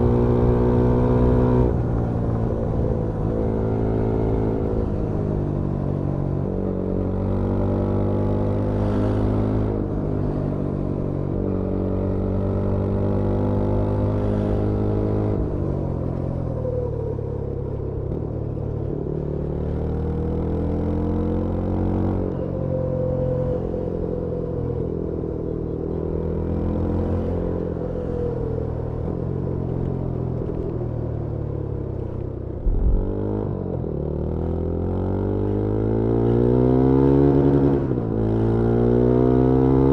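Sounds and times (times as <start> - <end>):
motorcycle engine and exhaust: 0.0 - 39.9
low thump: 32.6 - 33.2.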